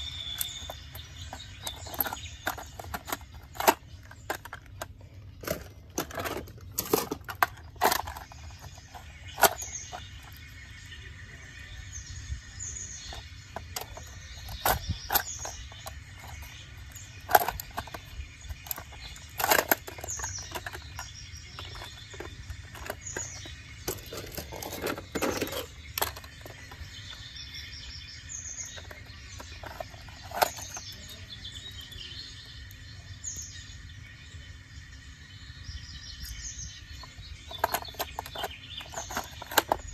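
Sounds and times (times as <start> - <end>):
birds chirping: 0.0 - 39.9
sharp clicks and knocks: 0.3 - 10.4, 13.1 - 27.3, 28.7 - 31.2, 37.0 - 39.9.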